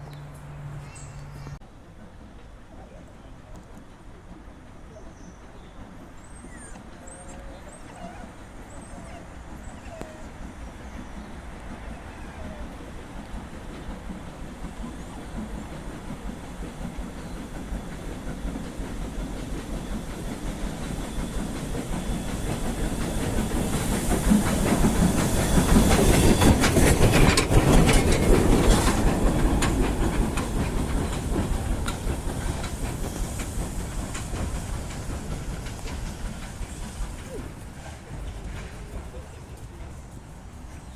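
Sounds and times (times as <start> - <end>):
train passing: 0.0 - 40.9
wheels clicking over rail joints: 6.7 - 40.9.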